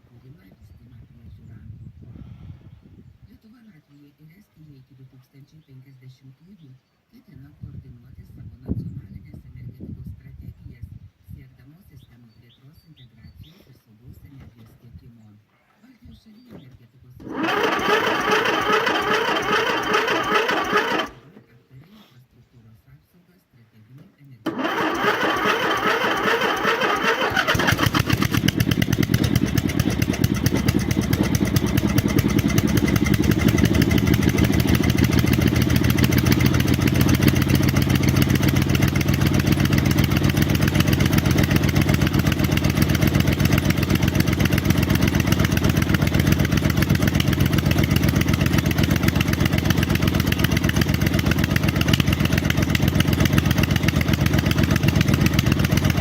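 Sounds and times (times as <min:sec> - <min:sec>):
engine clatter: 0:17.2 - 0:21.4, 0:24.5 - 0:56.0
small engine running: 0:17.2 - 0:21.4, 0:24.5 - 0:56.0.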